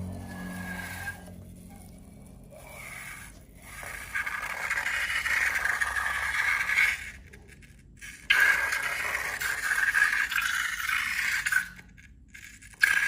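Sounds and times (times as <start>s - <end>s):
slime scraping and hissing: 0.0s - 13.0s.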